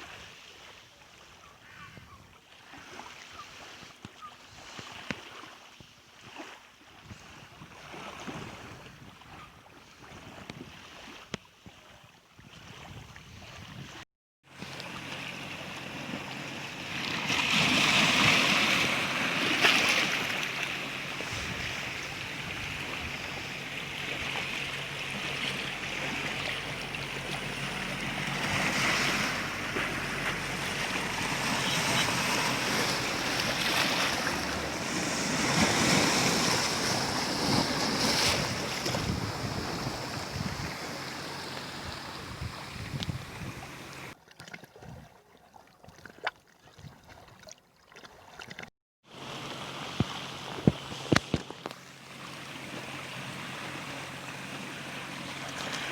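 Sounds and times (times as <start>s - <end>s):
waves rushing: 14.5s - 44.2s, 49.1s - 55.9s
wind buffeting microphone: 16.9s - 44.2s.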